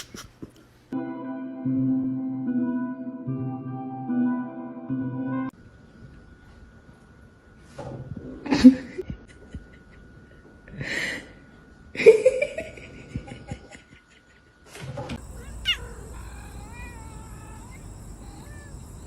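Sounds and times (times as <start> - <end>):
cat meowing: 15.2 - 19.0.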